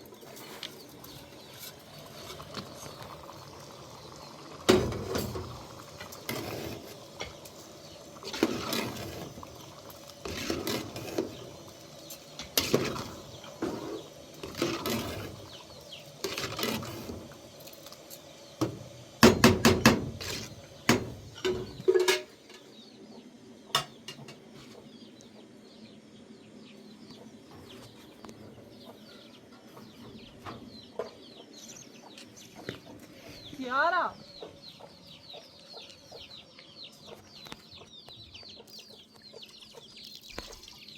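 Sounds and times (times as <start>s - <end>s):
chickens clucking: 21.4s - 40.9s.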